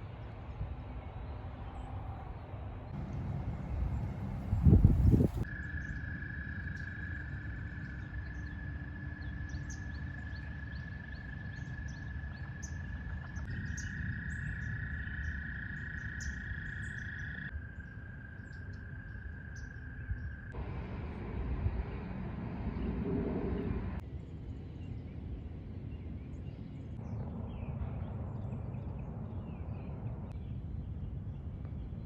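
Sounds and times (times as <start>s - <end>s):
low rumble: 2.8s - 5.5s, 20.6s - 24.0s.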